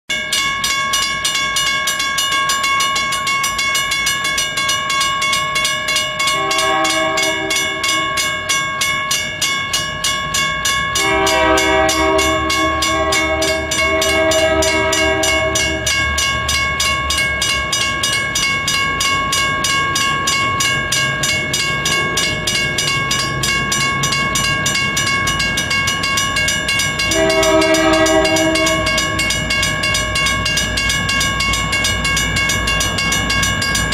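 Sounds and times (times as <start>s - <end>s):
diesel locomotive engines rumbling: 0.4s - 33.9s
train horn blasts: 6.3s - 8.2s, 11.0s - 16.1s, 27.1s - 29.4s.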